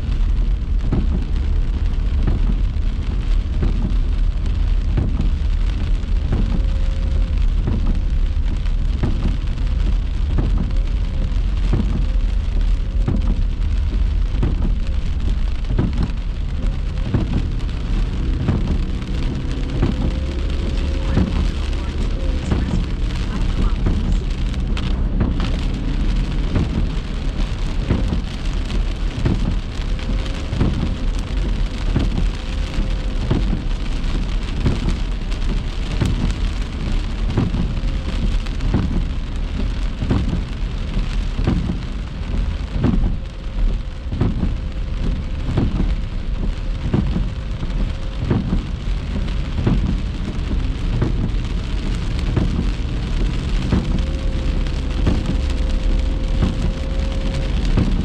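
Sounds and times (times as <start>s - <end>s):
heavy rain striking a car: 0.0s - 58.0s.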